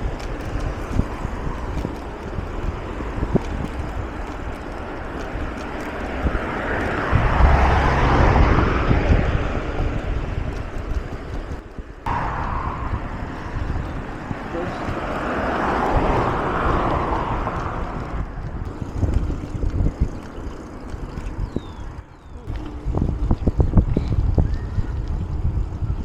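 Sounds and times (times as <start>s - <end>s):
wind buffeting microphone: 0.0s - 26.0s
low rumble: 6.2s - 26.0s.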